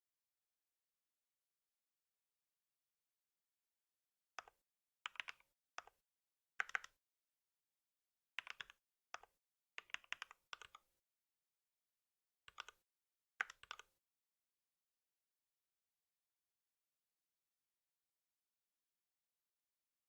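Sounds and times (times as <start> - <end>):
computer keyboard typing: 6.6 - 7.0, 8.4 - 8.8, 9.8 - 10.8, 12.5 - 12.8, 13.4 - 13.9.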